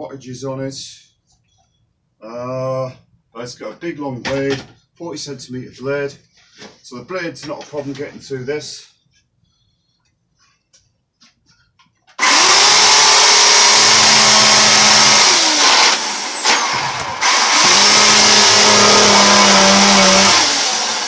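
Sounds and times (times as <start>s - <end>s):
electric chainsaw cutting wood: 12.2s - 21.0s.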